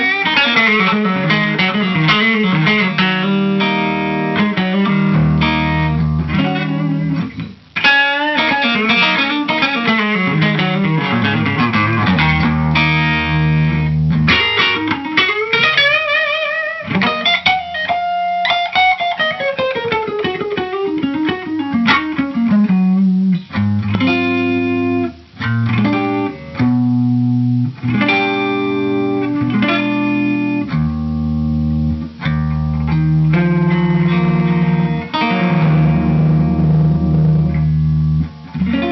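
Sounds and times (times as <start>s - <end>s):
electric guitar playing: 0.0s - 38.9s.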